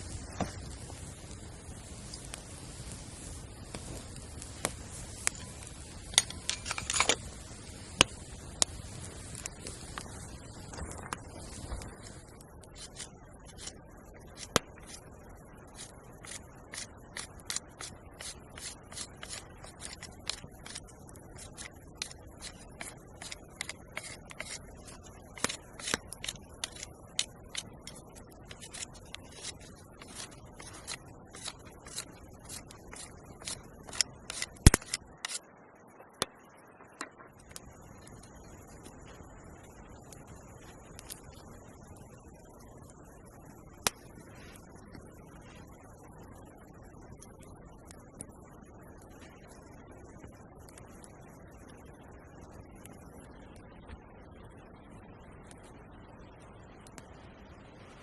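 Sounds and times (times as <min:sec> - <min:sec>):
sharp clicks: 0:33.5 - 0:35.4.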